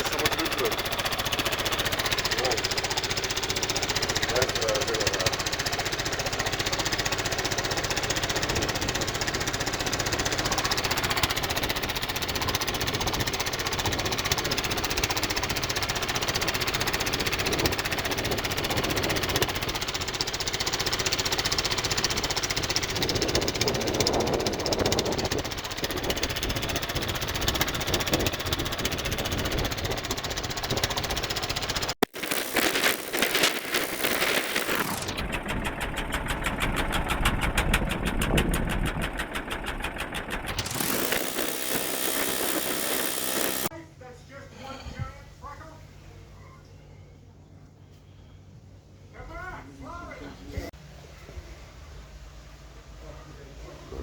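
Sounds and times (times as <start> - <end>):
boat engine knocking: 0.0 - 31.9, 34.0 - 43.7.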